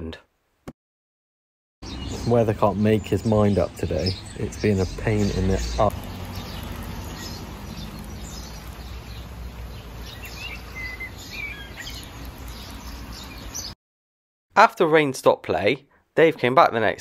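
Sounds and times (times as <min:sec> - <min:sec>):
birds chirping: 0:01.8 - 0:13.8
light rain hissing: 0:05.9 - 0:13.6.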